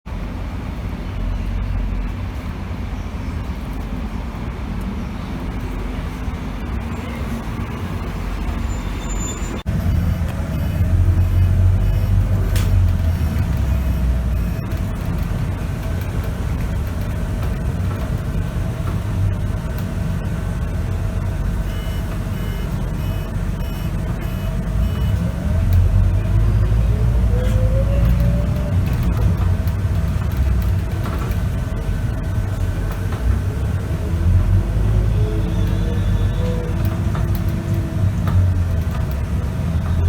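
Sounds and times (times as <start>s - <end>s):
bus diesel engine accelerating: 0.0s - 40.0s
gearbox whine: 4.8s - 40.0s.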